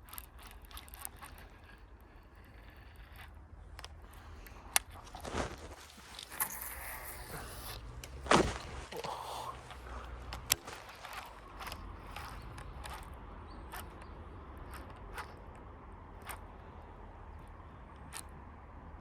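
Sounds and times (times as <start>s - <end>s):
fishing reel gears ticking: 0.0s - 5.2s, 10.2s - 18.4s.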